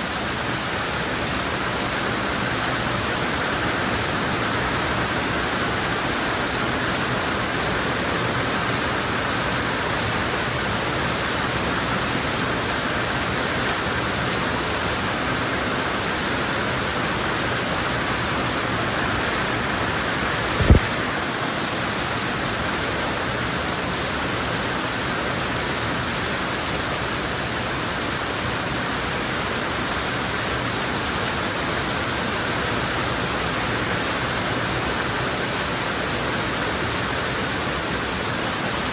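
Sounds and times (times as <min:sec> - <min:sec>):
heavy rain falling: 0:00.0 - 0:38.9
brief thump: 0:20.4 - 0:21.0.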